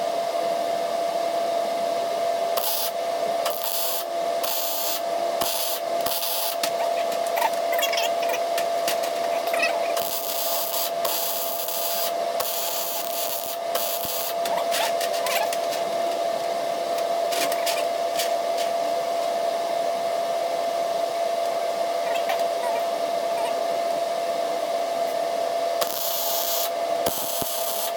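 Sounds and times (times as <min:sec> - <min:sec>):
steady hum: 0:00.0 - 0:27.9
arc welding crackling hiss: 0:02.5 - 0:07.4, 0:08.2 - 0:15.0, 0:25.8 - 0:27.9
sharp welding pops: 0:02.6 - 0:06.7, 0:10.0 - 0:14.4, 0:25.8 - 0:27.9.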